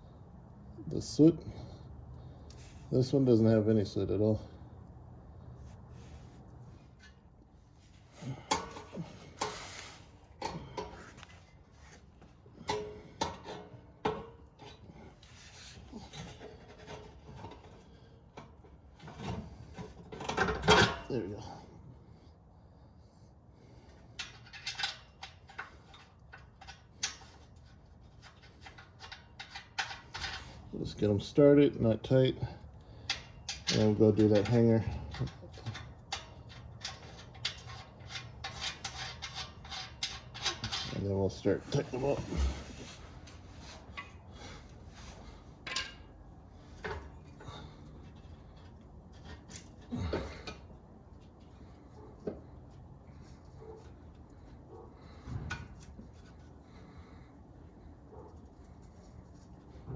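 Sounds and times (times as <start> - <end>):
metal scraping on metal: 5.9 - 12.0, 33.0 - 50.5.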